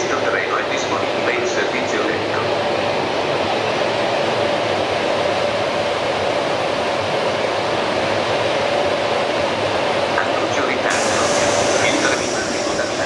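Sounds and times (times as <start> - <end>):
train rushing noise: 10.8 - 13.0.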